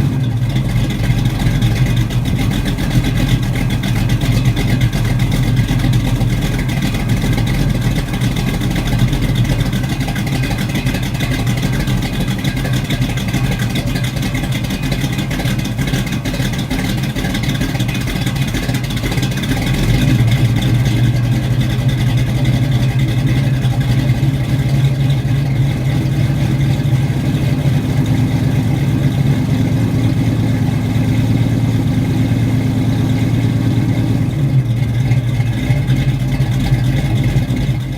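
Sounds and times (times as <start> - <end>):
car engine idling: 0.0 - 37.9.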